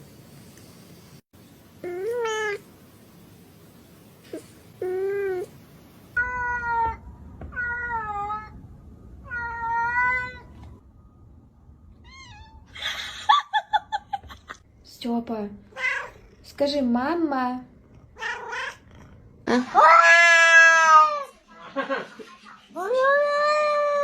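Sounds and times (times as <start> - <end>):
cat meowing: 6.2 - 8.6, 9.2 - 10.5, 12.0 - 12.7, 15.7 - 16.3, 18.2 - 18.8.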